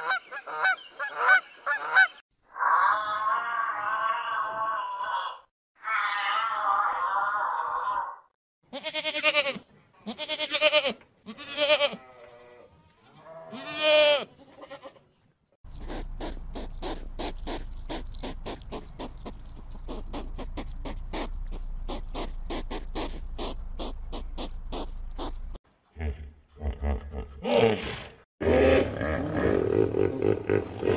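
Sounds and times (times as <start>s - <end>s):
drawn-out animal calls: 15.7s - 25.6s
hedgehog snuffling and huffing: 15.7s - 25.6s.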